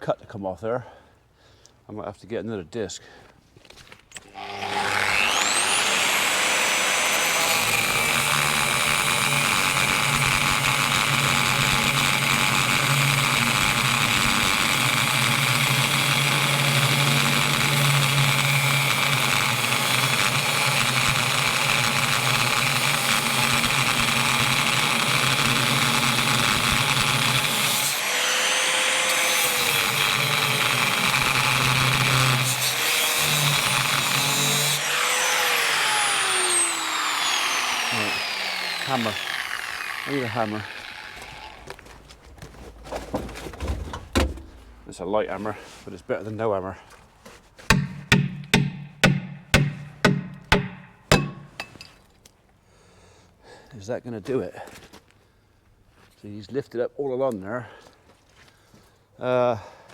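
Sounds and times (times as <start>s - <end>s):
angle grinder cutting steel: 4.2s - 41.9s, 47.7s - 51.9s.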